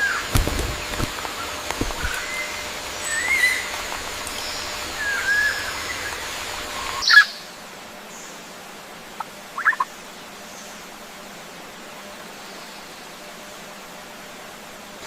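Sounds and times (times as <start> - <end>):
birds calling: 0.0 - 7.4
faint outdoor hiss: 0.0 - 15.0.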